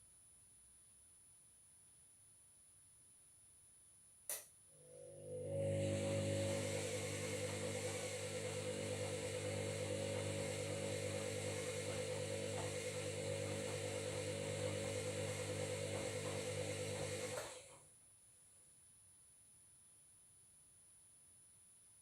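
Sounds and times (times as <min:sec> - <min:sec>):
washing machine motor hum: 0:04.8 - 0:17.8.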